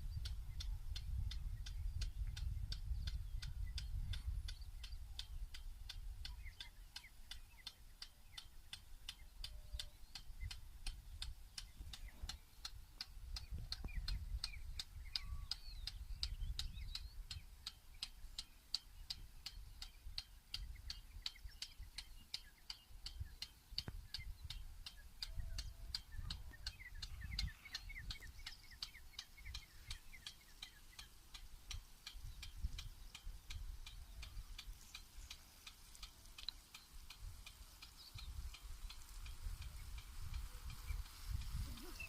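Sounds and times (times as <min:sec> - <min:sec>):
sprinkler ticking: 0:00.0 - 0:42.0.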